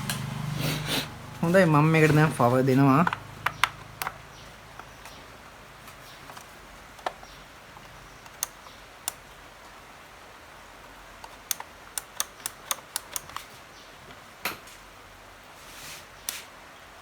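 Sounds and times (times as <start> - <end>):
radio switches clicking: 7.9 - 9.2, 11.2 - 13.5.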